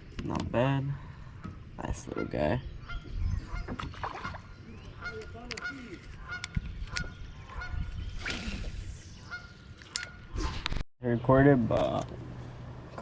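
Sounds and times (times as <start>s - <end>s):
birds honking: 1.0s - 8.0s, 9.1s - 10.4s.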